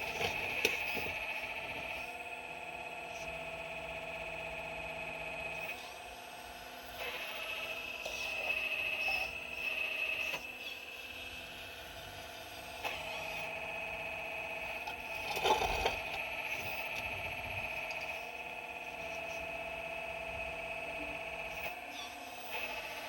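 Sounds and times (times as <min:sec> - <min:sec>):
excavator whining: 0:00.0 - 0:02.2, 0:06.9 - 0:23.0
bucket scraping rock: 0:14.7 - 0:17.1.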